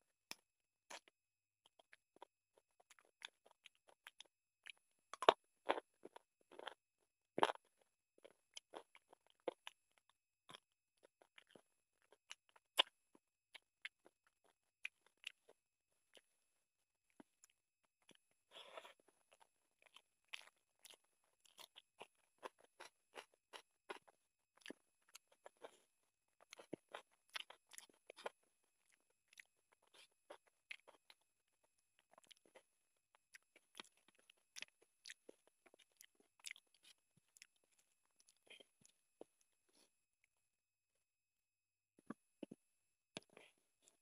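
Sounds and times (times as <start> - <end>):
faint close chewing with wet smacks: 17.1 - 40.3.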